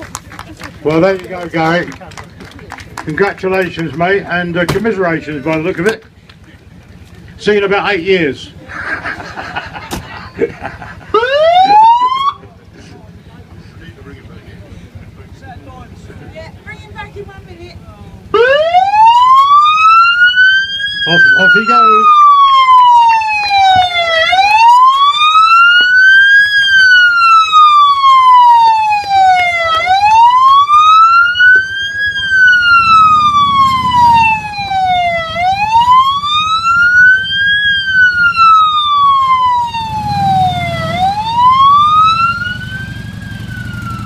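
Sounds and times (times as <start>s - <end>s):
police siren wailing: 11.1s - 12.5s, 18.2s - 44.0s.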